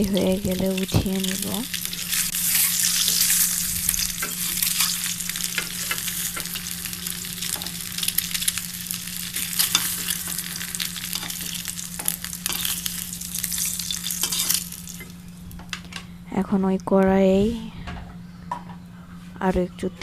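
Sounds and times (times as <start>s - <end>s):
eggs sizzling in hot oil: 0.0s - 15.8s.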